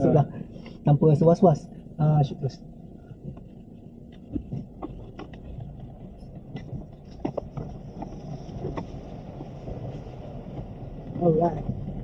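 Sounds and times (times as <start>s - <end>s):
vehicle rumbling on rough track: 0.0s - 12.0s
knocks and rattles: 4.1s - 12.0s.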